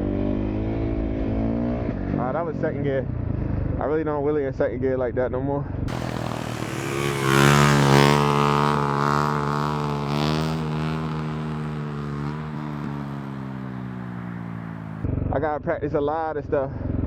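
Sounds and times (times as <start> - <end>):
dirt bike engine running: 5.9 - 15.2.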